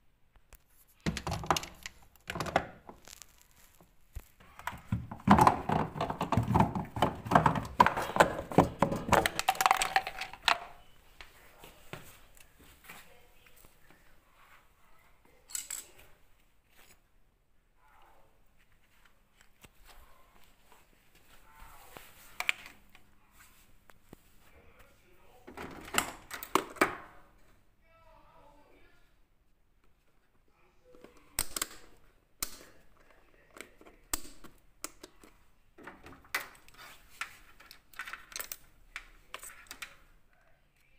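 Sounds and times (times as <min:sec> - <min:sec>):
hard parts knocking and clattering: 0:01.0 - 0:03.1, 0:04.5 - 0:10.7.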